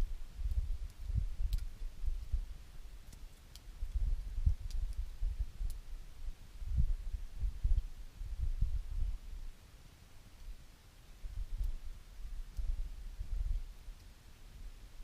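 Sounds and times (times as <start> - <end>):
wood fire crackling and popping: 0.0 - 9.3, 11.2 - 15.0
low rumble: 3.8 - 9.4.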